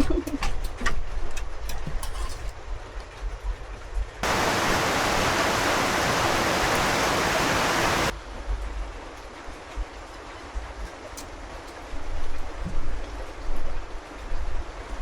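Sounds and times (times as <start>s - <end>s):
running water rushing: 4.2s - 8.2s.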